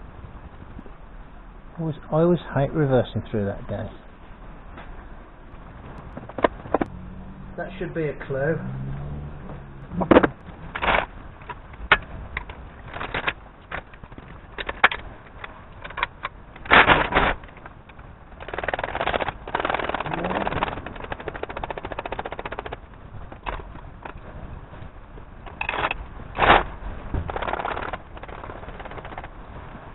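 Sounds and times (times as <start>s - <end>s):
knocks and clunks: 5.8s - 6.9s, 9.4s - 24.9s
rattling and rapid clicking: 9.8s - 29.9s.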